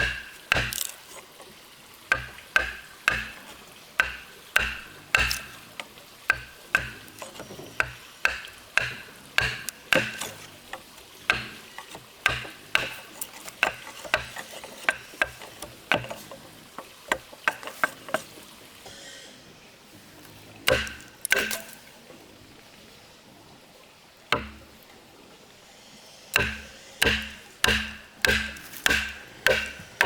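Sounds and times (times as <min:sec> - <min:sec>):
hand tool knocking on wood: 0:00.0 - 0:00.9, 0:02.1 - 0:05.6, 0:06.3 - 0:18.3, 0:20.7 - 0:21.7, 0:24.4 - 0:24.7, 0:26.4 - 0:30.0.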